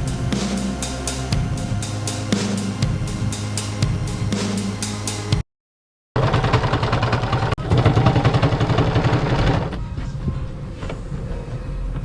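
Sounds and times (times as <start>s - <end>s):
engine running with rapid pulse: 0.0s - 5.4s.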